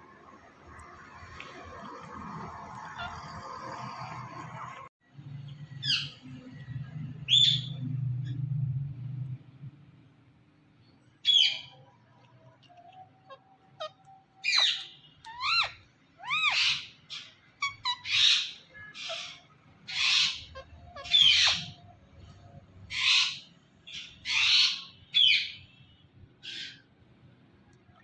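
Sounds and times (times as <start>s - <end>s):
parrot screeching calls: 13.2s - 21.8s, 22.9s - 25.6s.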